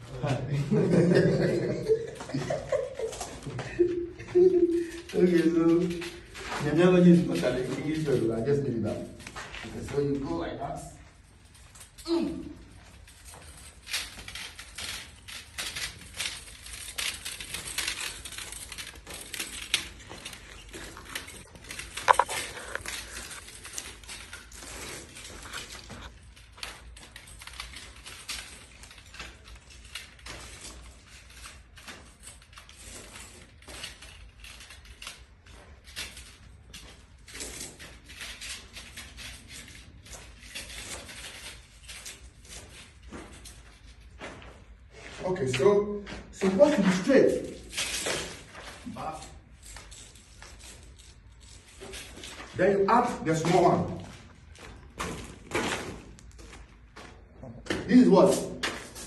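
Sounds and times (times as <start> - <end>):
pipe insulation crackling and clicking: 0.0 - 59.0.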